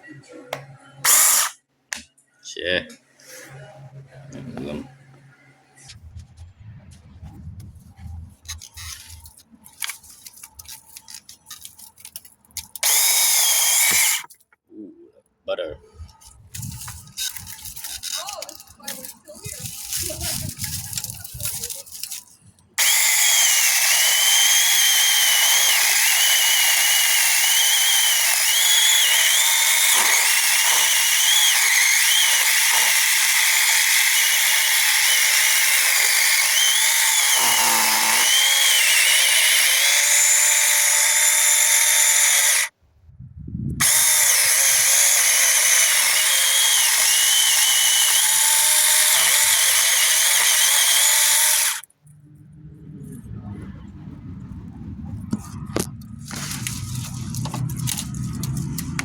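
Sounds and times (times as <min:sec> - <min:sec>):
power tool motor whining: 0:01.0 - 0:01.6, 0:08.6 - 0:14.4, 0:16.5 - 0:22.2, 0:22.8 - 0:42.7, 0:43.8 - 0:51.9.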